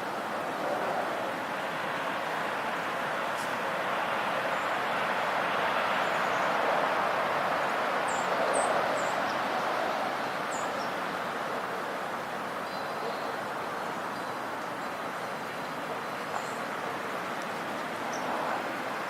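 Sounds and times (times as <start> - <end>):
steady rushing hiss: 0.0 - 19.0
small birds chirping: 17.4 - 18.4.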